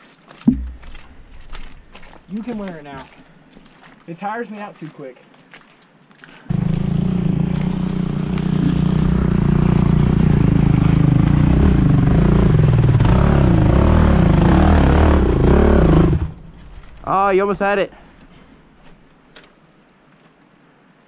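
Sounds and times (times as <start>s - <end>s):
dirt bike engine revving: 6.5s - 16.4s.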